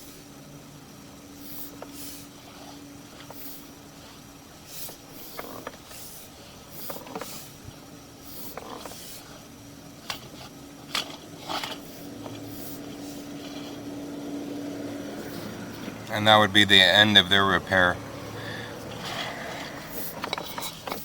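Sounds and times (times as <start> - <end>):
steady low hum: 0.0 - 21.0
cable creaking and scraping: 10.1 - 14.4, 15.1 - 21.0.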